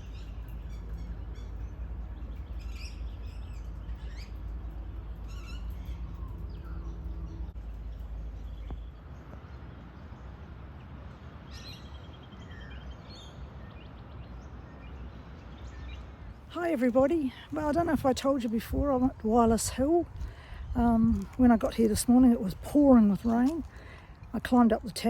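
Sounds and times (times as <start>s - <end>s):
birds chirping and whistling: 0.0s - 7.6s
steady low rumble: 0.0s - 25.0s.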